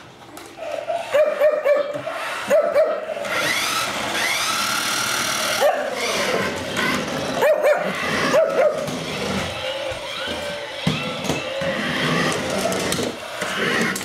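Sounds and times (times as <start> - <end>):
small dog barking: 0.6 - 3.1, 5.6 - 6.1, 7.4 - 8.9.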